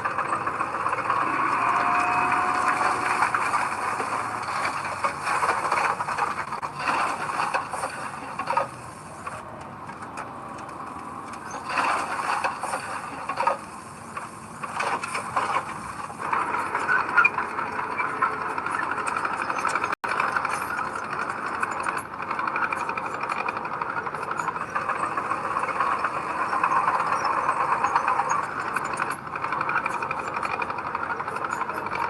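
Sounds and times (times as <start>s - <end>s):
heavy earthmoving machinery: 0.0s - 32.0s.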